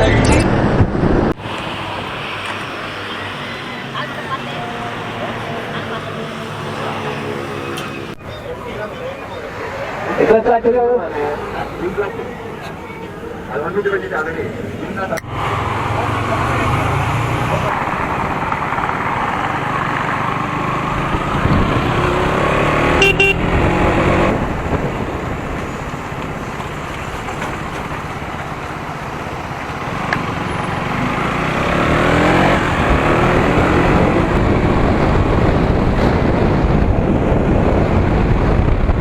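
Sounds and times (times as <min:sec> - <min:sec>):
road and traffic noise: 0:00.0 - 0:39.0
motorcycle engine revving: 0:15.2 - 0:26.8, 0:27.5 - 0:39.0
vehicle horn: 0:22.8 - 0:23.6.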